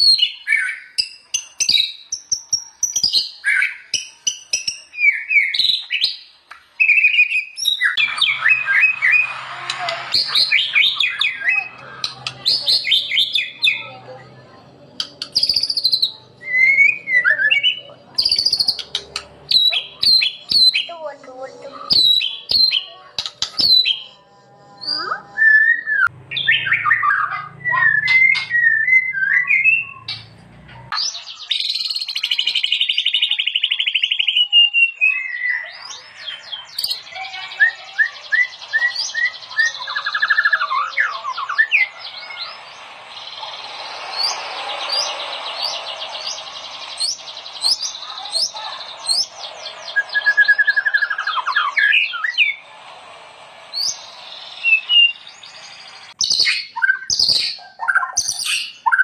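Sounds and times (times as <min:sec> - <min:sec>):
bird singing whistles and trills: 0:00.0 - 0:09.3, 0:10.1 - 0:13.9, 0:15.0 - 0:20.9, 0:21.6 - 0:30.2, 0:31.0 - 0:52.6, 0:53.7 - 0:59.0
low hum: 0:41.2 - 0:56.2.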